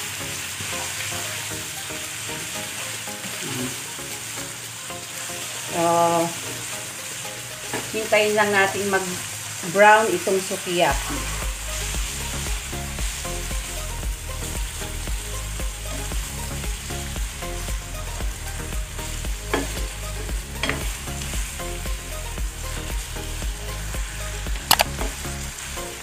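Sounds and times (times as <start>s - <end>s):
background music with steady beat: 0.0s - 9.4s, 10.8s - 26.0s
beef and onions sizzling: 0.0s - 26.0s
spatula scraping pan: 18.5s - 21.3s.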